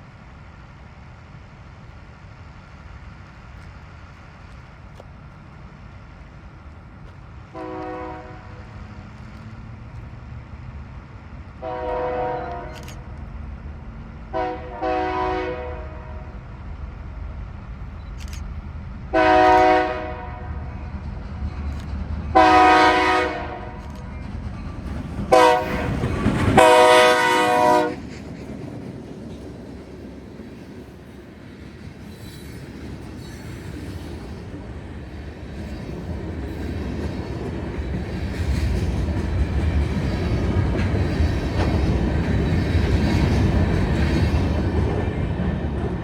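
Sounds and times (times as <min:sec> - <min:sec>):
locomotive rumble: 0:00.0 - 0:46.0
locomotive horn blasts: 0:07.5 - 0:08.6, 0:11.6 - 0:12.8, 0:14.3 - 0:16.2, 0:19.1 - 0:20.6, 0:22.4 - 0:23.8, 0:25.3 - 0:28.0.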